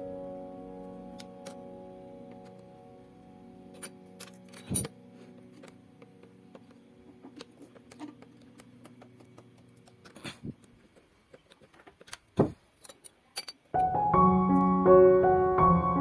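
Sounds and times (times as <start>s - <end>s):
faint background music: 0.0s - 11.8s, 12.4s - 16.0s
small metal parts clicking: 3.7s - 5.8s, 7.4s - 13.8s.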